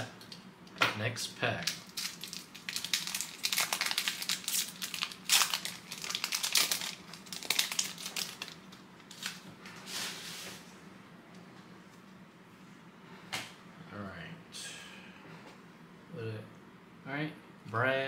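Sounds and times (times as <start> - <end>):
foil wrapper crinkling: 1.6 - 9.4.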